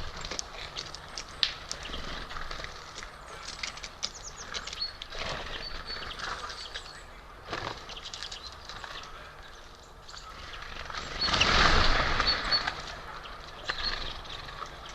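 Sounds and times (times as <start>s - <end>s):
high bird chirps: 10.0s - 14.9s
bird wings flapping: 10.5s - 13.1s.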